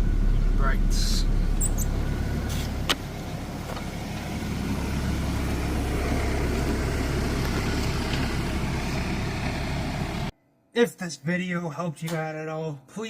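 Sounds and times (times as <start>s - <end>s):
pickup engine idling: 0.0s - 10.3s.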